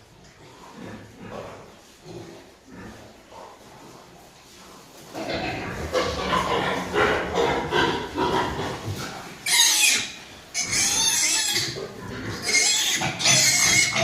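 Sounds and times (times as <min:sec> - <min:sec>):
pig squealing: 0:09.4 - 0:14.0.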